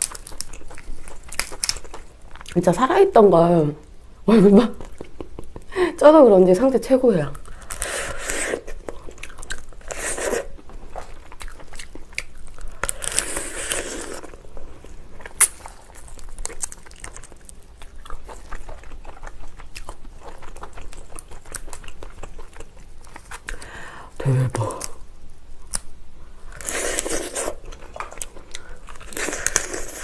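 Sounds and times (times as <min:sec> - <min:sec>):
biting and chewing lobster: 0:00.0 - 0:02.6, 0:07.4 - 0:14.5, 0:15.2 - 0:23.7.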